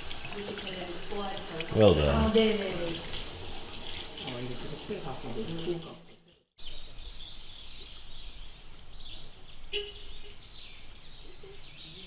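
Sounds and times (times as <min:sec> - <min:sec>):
small birds chirping and singing: 0:06.6 - 0:12.0.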